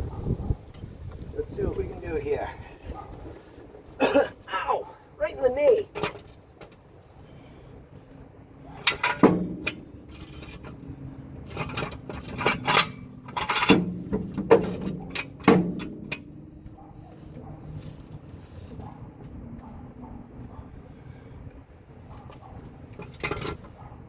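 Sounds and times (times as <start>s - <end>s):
metal knocks with ringing hum: 8.8s - 10.1s, 12.0s - 16.8s.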